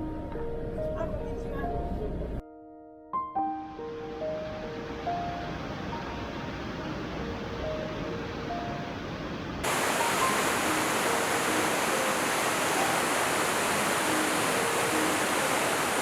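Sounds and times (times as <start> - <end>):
faint music: 0.0 - 2.5, 3.7 - 16.0
rushing river water: 9.6 - 16.0.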